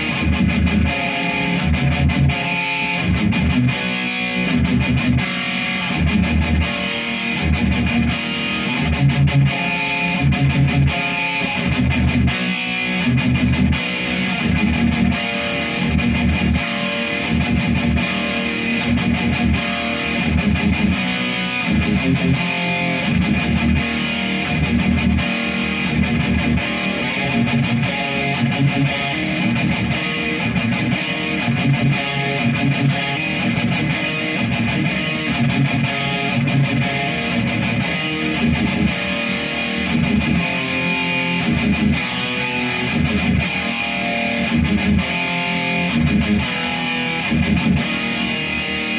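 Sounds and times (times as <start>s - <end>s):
distorted electric guitar riffing: 0.0s - 48.9s.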